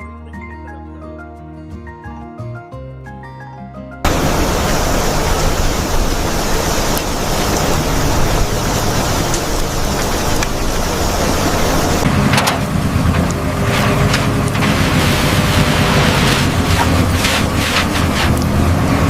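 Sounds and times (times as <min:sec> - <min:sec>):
heavy rain pouring: 0:04.1 - 0:19.0.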